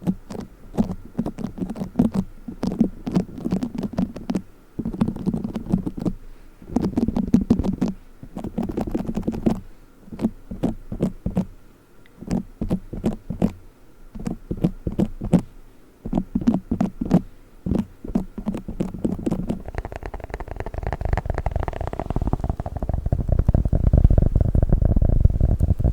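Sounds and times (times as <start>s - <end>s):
play foam crackling and squishing: 18.2s - 25.9s.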